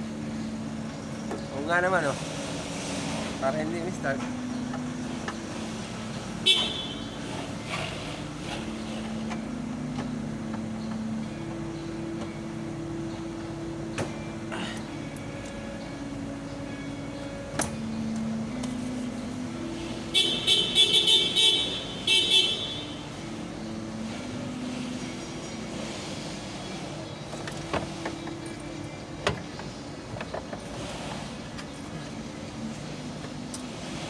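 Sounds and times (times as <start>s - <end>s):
car horn short toots: 6.4s - 7.2s, 20.1s - 23.1s.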